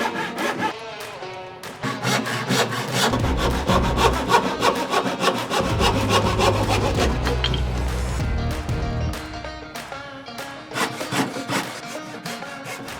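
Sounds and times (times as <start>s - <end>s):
hand saw cutting wood: 0.0s - 8.0s, 10.7s - 12.9s
background music with bass: 3.1s - 4.3s, 5.6s - 9.8s.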